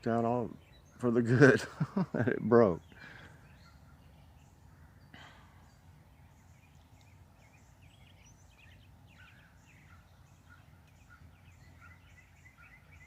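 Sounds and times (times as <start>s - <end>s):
low steady background noise: 0.0s - 13.0s
songbirds chirping: 0.0s - 13.0s.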